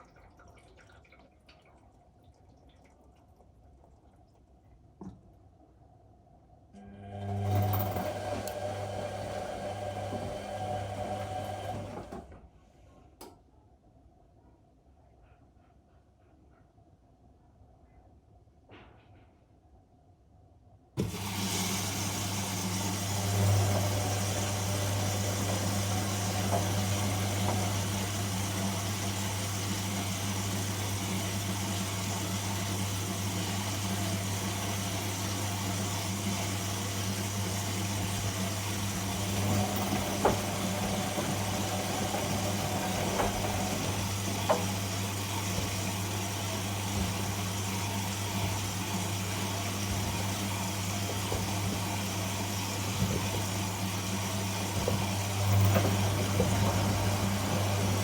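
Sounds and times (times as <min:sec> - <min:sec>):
washing machine humming: 0:00.0 - 0:06.0, 0:06.7 - 0:13.3, 0:21.0 - 0:58.0.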